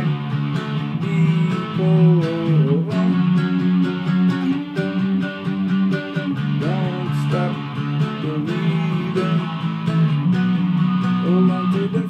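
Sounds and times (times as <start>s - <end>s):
distorted guitar strummed chords: 0.0s - 12.0s
man singing: 0.9s - 5.1s, 6.5s - 10.1s, 10.9s - 12.0s.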